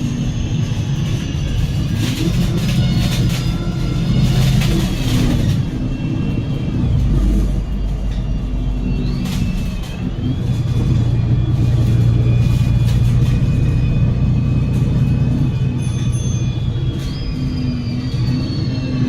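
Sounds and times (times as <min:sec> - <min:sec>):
bus diesel engine drone: 0:00.0 - 0:19.0.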